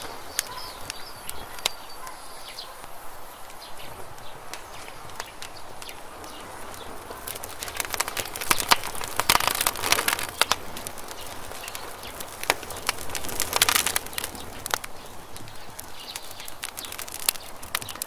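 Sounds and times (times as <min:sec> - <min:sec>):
campfire crackling: 0:00.0 - 0:18.0
fire pops and snaps: 0:00.0 - 0:18.0
steady hiss: 0:00.0 - 0:18.0.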